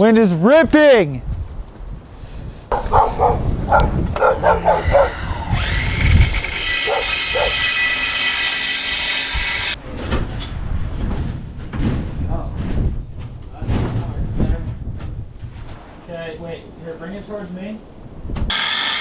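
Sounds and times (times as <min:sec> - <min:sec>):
power tool motor whining: 0:02.8 - 0:09.8, 0:18.5 - 0:19.0.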